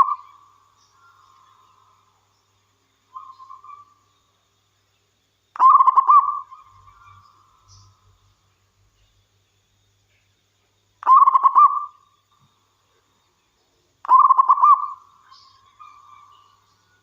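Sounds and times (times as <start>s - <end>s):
dove cooing: 5.6s - 6.6s, 11.0s - 11.9s, 14.0s - 15.0s.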